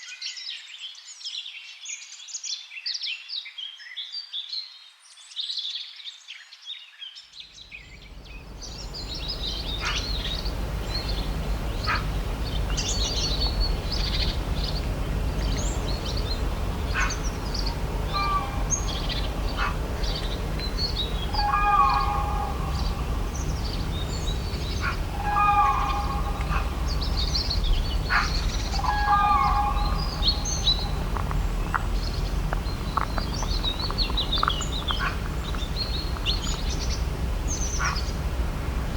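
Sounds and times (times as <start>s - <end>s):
low pitched bird call: 7.7s - 38.3s
birds chirping and singing: 7.7s - 38.9s
low outdoor rumble: 7.7s - 38.9s.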